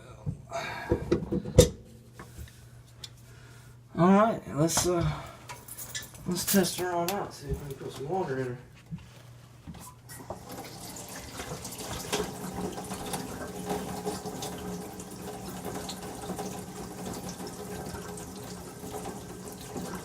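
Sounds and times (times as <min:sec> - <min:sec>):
faucet running into sink: 0:10.1 - 0:20.0.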